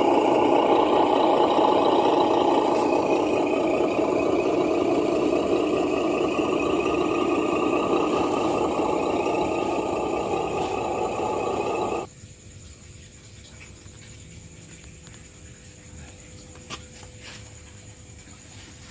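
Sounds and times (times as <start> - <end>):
faint hum: 0.0 - 12.1
pressure washer spraying: 0.0 - 12.1.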